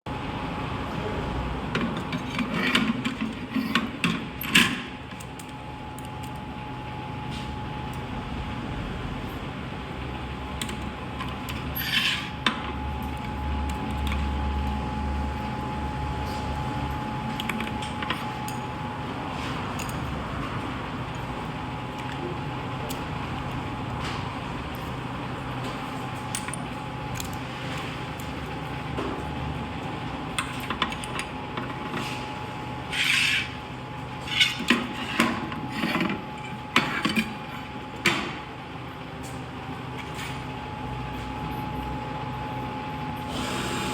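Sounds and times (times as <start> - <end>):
steady machine hum: 0.1 - 43.9
metal scrape: 32.9 - 33.6.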